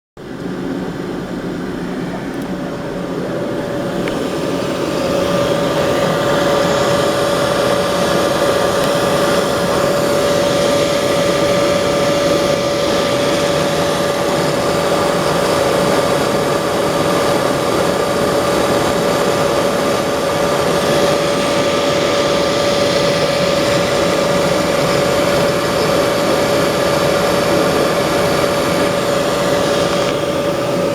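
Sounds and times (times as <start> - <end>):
boiler fan and burner humming: 0.2 - 30.9.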